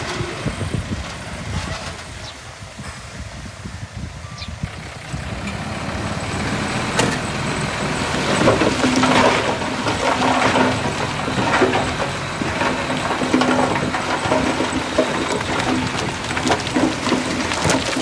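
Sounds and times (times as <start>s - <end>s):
diesel machinery engine: 0.0s - 16.8s.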